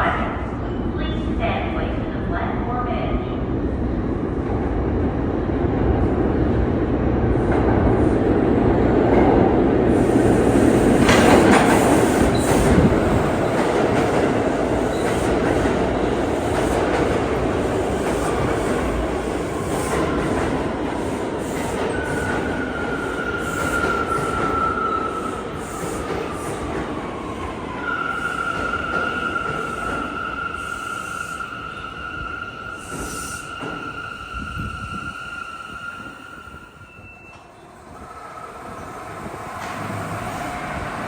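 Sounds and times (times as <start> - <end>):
subway train rumbling: 0.0 - 41.0.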